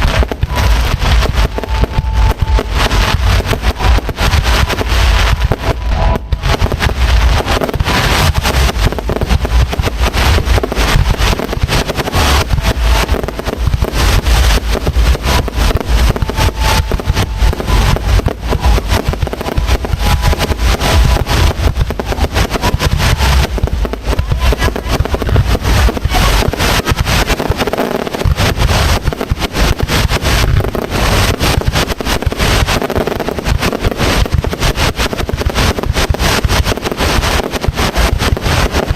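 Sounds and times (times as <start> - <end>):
heavy low rumble: 0.0 - 37.1
fireworks bursts and crackles: 0.0 - 38.9.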